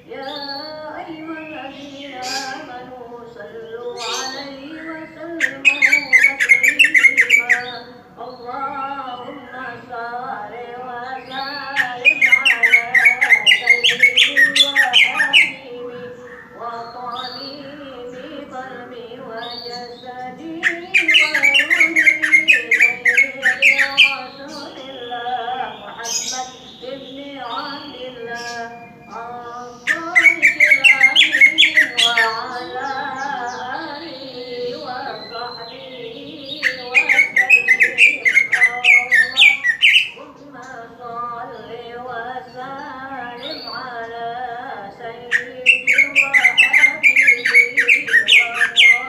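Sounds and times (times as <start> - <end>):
bird chirping sharply: 5.4 - 8.1, 11.5 - 15.6, 20.5 - 32.8, 36.4 - 40.2, 45.3 - 49.0.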